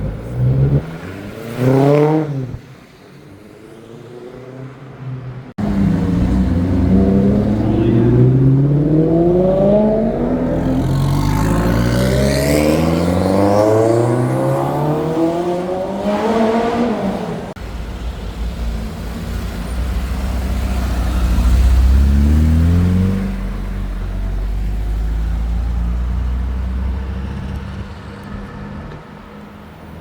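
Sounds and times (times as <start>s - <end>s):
car engine accelerating: 3.8s - 30.0s
deep engine rumble: 5.6s - 11.8s.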